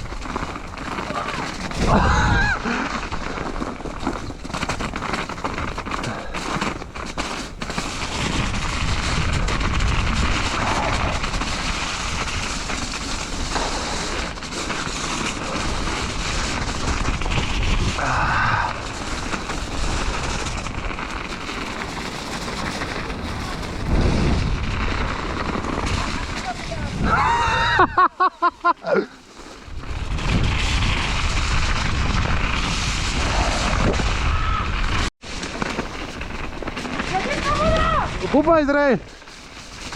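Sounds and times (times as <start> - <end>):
wind buffeting microphone: 0.0 - 3.3, 3.9 - 28.0, 36.2 - 39.1
bike rattling on trail: 0.0 - 27.5, 28.2 - 39.9
high vocal whoops: 27.0 - 28.0.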